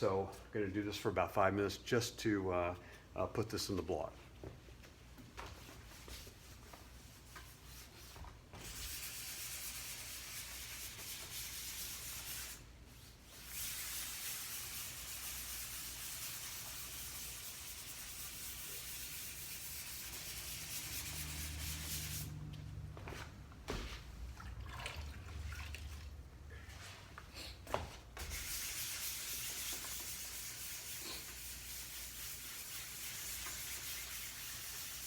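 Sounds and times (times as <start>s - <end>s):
wet sanding by hand: 7.1s - 22.3s, 28.2s - 35.0s.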